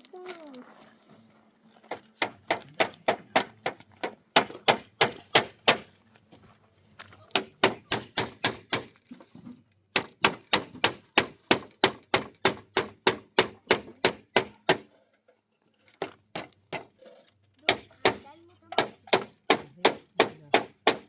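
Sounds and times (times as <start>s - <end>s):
hammer striking wood: 2.2s - 5.9s, 7.3s - 8.9s, 9.9s - 14.9s, 16.0s - 16.9s, 17.7s - 21.0s.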